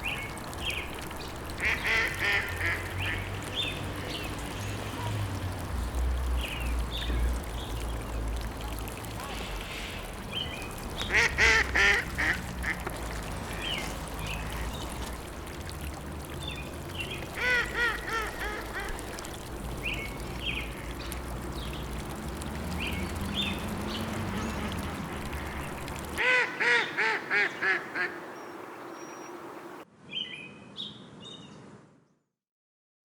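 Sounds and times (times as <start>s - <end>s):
small birds chirping: 0.0s - 26.2s
watery hiss: 0.0s - 26.3s
ducks quacking: 1.5s - 3.5s, 8.8s - 15.1s, 17.3s - 19.4s, 24.2s - 28.3s.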